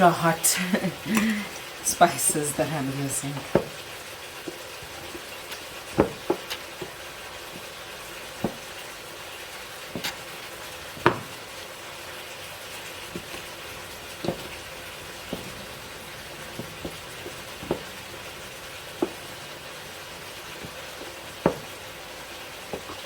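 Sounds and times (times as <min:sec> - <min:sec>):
food sizzling in a frying pan: 0:00.0 - 0:23.0
spoon knocking against pan: 0:11.0 - 0:11.4, 0:13.1 - 0:19.7, 0:20.4 - 0:21.8.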